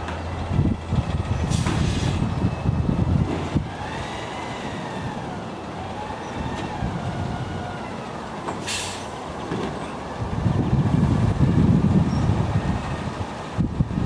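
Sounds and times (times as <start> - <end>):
garbage truck humming: 0.0 - 14.0
air hiss: 8.6 - 9.1.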